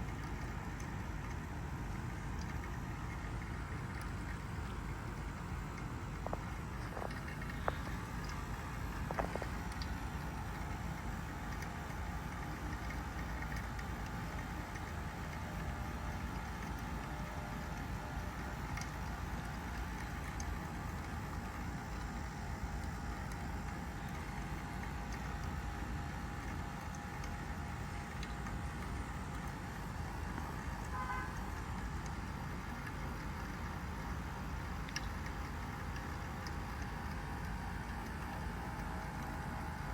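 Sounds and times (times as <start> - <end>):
heat pump unit humming: 0.0 - 39.9.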